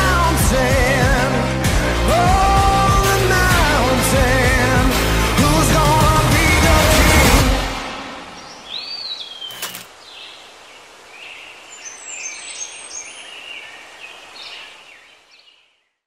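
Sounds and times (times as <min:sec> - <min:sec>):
steady background hiss: 0:08.0 - 0:15.6
birds chirping: 0:08.2 - 0:16.0
sharp click: 0:09.5 - 0:09.9.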